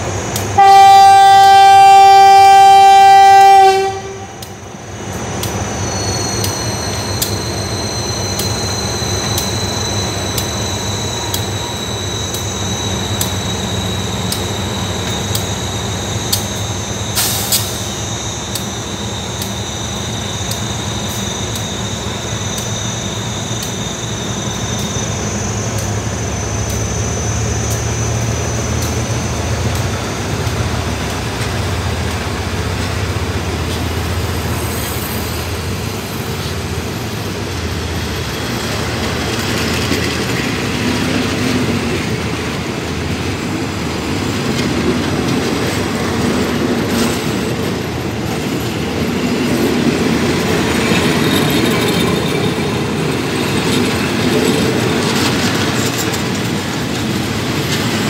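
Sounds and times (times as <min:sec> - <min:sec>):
locomotive engine hum: 0:00.0 - 0:58.0
wheels clicking over rail joints: 0:37.4 - 0:58.0.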